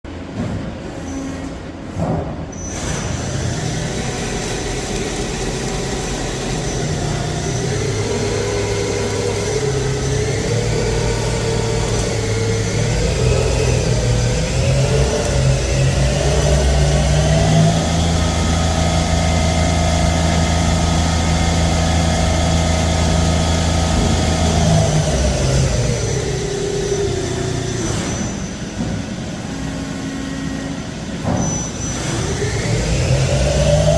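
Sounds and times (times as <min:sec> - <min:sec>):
lathe machine whine: 0:02.8 - 0:33.9.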